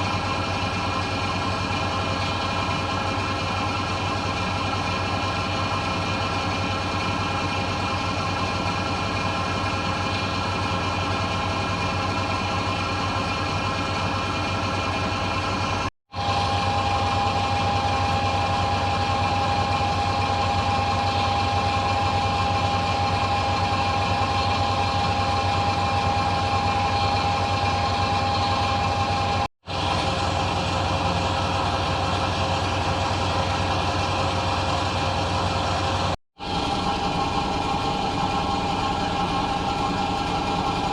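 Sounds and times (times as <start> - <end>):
washing machine spinning: 0.0 - 40.9.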